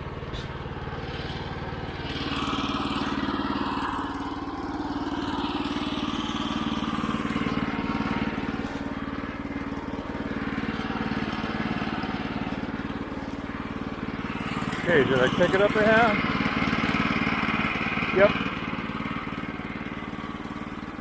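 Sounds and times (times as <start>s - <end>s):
sawmill engine running: 0.0s - 21.0s
saw blade cutting log: 5.6s - 16.4s.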